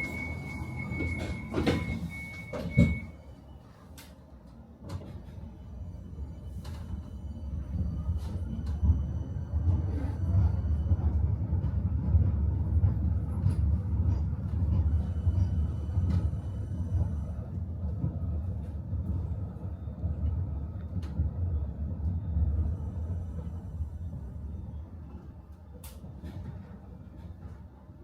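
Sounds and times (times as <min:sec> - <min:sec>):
tram rumbling on rails: 0:00.0 - 0:28.0.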